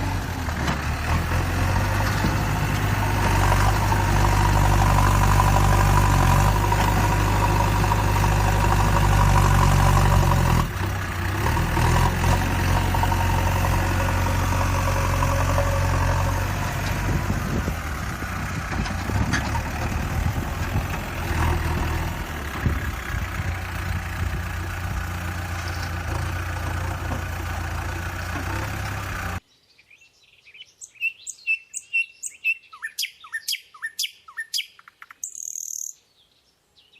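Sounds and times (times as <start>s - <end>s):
engine humming: 0.0s - 29.4s
birds chirping: 29.4s - 36.9s.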